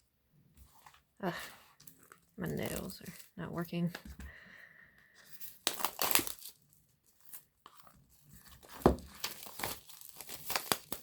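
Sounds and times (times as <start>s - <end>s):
plastic wrapping crinkling and tearing: 1.8s - 3.4s, 5.4s - 11.0s.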